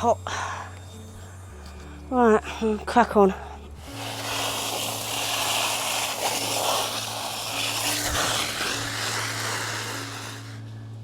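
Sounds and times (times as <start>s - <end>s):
garden hose water spraying: 2.1s - 10.8s.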